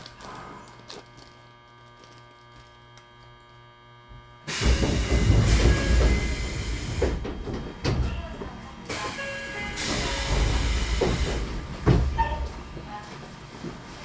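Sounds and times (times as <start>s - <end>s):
electric train humming: 4.4s - 14.0s
train doors opening with air hiss: 4.5s - 14.0s.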